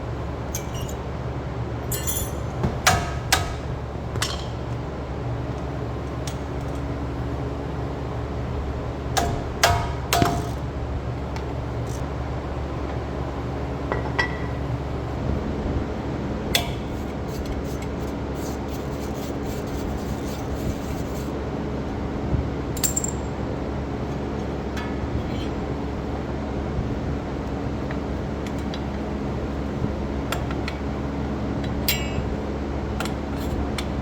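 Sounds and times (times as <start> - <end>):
steady low hum: 0.0 - 34.0
metal parts clinking: 0.5 - 1.0, 1.8 - 2.7, 22.8 - 23.4.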